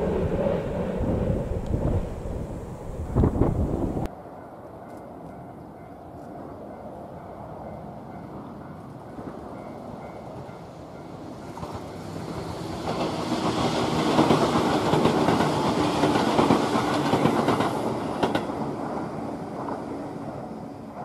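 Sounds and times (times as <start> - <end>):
train wheels clattering over rail joints: 11.6 - 19.8.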